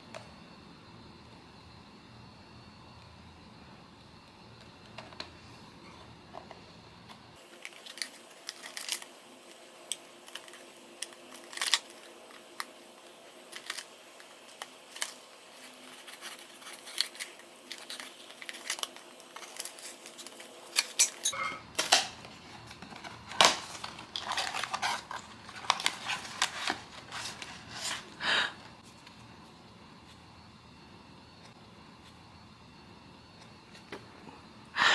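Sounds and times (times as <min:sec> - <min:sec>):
paper and plastic crinkling: 0:07.4 - 0:09.6, 0:10.2 - 0:21.0, 0:21.8 - 0:28.2.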